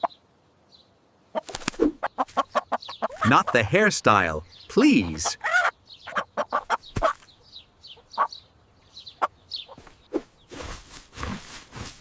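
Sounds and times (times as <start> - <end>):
chicken clucking: 1.4 - 3.8, 5.0 - 7.2
rustling: 9.8 - 12.0.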